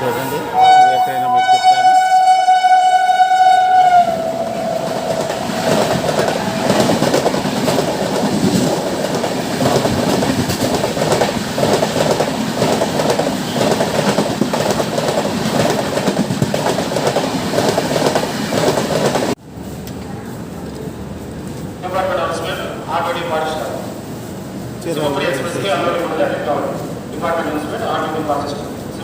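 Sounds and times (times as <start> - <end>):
train horn: 0.0 - 5.0
train wheels clattering on rails: 4.6 - 19.4.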